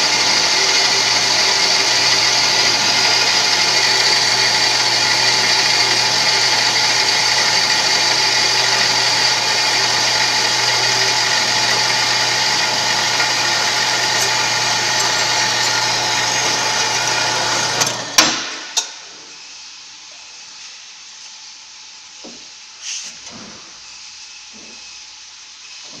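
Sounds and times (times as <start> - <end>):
band saw running: 0.0 - 18.2.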